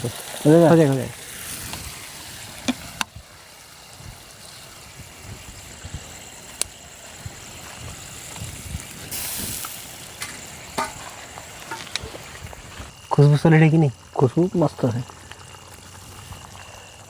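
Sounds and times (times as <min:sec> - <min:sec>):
brief hiss: 0:08.9 - 0:12.9.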